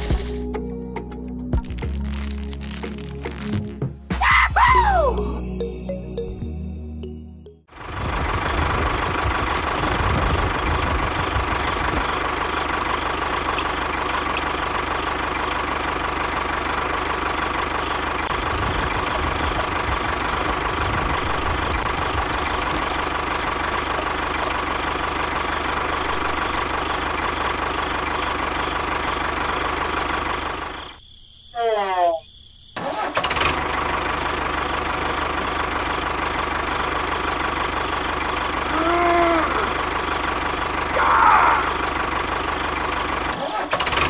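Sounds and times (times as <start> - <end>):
engine idling: 7.7 - 31.0, 33.3 - 44.0.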